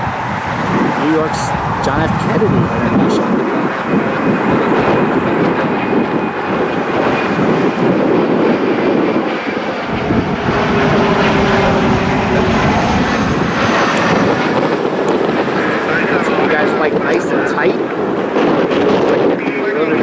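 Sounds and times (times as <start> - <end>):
strong wind buffeting microphone: 0.0 - 20.0.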